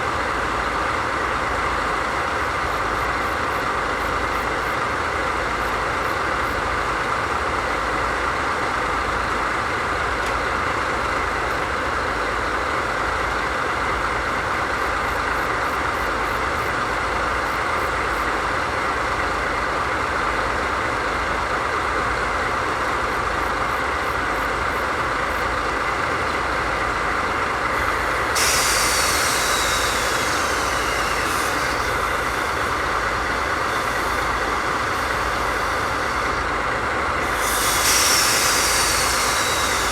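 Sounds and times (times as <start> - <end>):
diesel locomotive idling: 0.0 - 39.9
air hiss with falling whistle: 27.8 - 36.5, 37.2 - 39.9.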